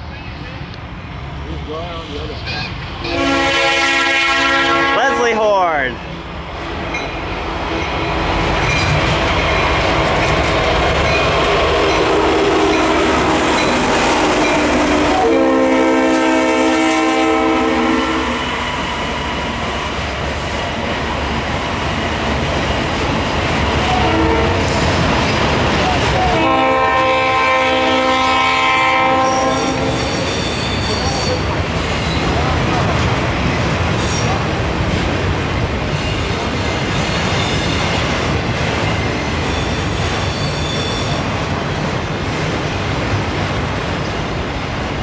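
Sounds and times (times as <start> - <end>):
diesel locomotives running past: 0.0 - 45.0
locomotive air horn: 3.0 - 5.3, 12.1 - 18.5, 23.9 - 24.8, 26.3 - 31.4.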